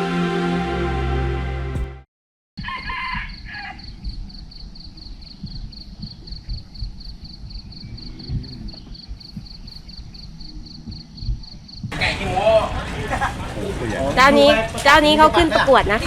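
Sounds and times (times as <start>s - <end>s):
background music: 0.0s - 2.0s
rooster crowing: 2.6s - 4.0s
high pulsing chirp: 3.3s - 11.9s.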